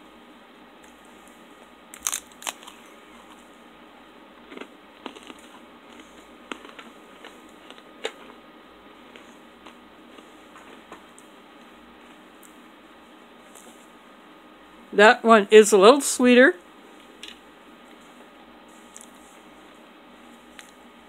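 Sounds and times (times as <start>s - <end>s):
cracker crunching: 1.9s - 3.5s, 4.4s - 8.4s, 18.8s - 20.9s.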